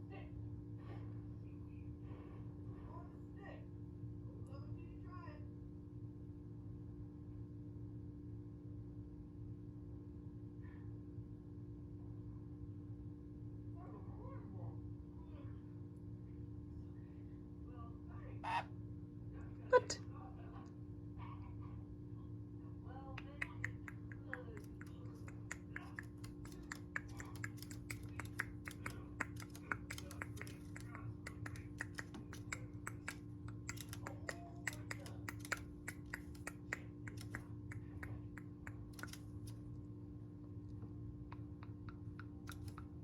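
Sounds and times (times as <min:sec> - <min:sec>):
low electrical hum: 0:00.0 - 0:43.0
bird pecking and clicking: 0:23.2 - 0:39.6, 0:41.4 - 0:43.0.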